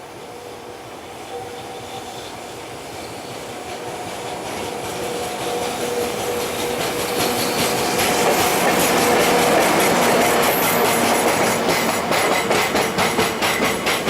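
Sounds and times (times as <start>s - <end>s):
locomotive whine: 0.0s - 14.0s
wheels clacking over rail joints: 2.9s - 14.0s.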